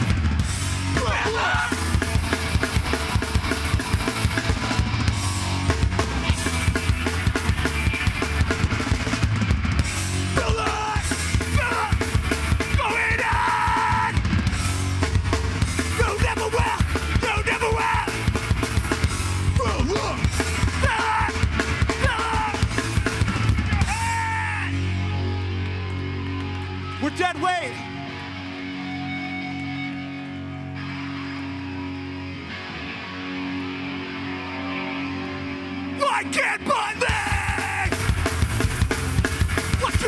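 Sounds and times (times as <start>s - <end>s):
yelled vocals: 0.0s - 8.0s, 10.2s - 14.5s, 15.8s - 24.8s, 35.8s - 40.0s
fast drumming: 0.0s - 24.7s, 37.0s - 40.0s
distorted guitars: 0.0s - 40.0s.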